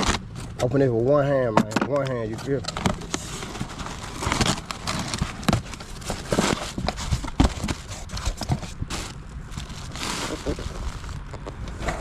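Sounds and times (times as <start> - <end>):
packaging scraping and rustling: 0.0 - 0.9, 1.9 - 12.0
packaging knocks and clicks: 1.6 - 9.8.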